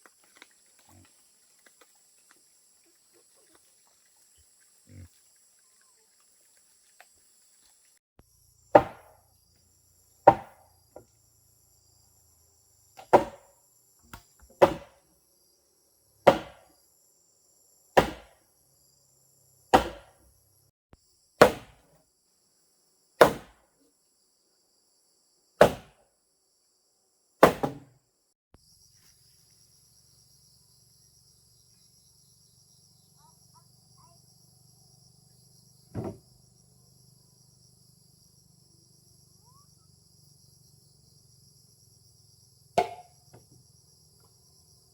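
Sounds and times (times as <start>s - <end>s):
insects trilling: 0.0s - 19.7s, 28.6s - 44.9s
hand tool chopping wood: 8.8s - 9.2s, 10.2s - 10.6s, 13.0s - 13.5s, 14.1s - 15.0s, 16.3s - 16.7s, 18.0s - 18.4s, 19.7s - 20.2s, 21.4s - 21.9s, 23.2s - 23.6s, 25.6s - 26.0s, 27.4s - 27.9s, 42.8s - 43.1s.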